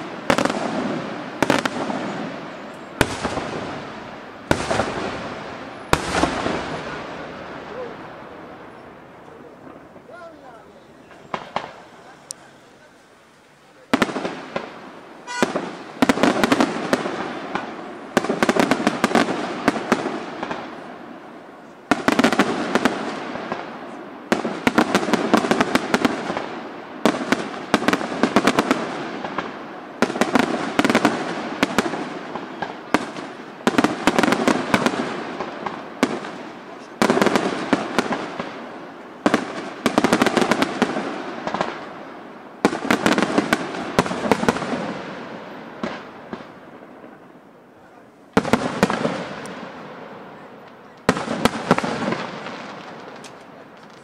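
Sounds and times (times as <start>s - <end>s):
firework crackle: 0.0s - 54.0s
firework shells bursting: 11.0s - 12.6s, 50.6s - 54.0s.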